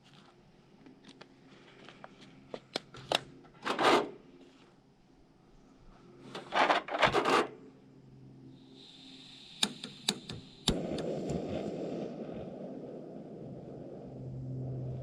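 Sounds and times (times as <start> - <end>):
handling and scraping: 1.5 - 4.8, 6.2 - 7.6
gas hissing from valve: 8.6 - 13.0
burner flame rushing: 8.8 - 15.0
sharp igniter clicks: 9.2 - 11.7.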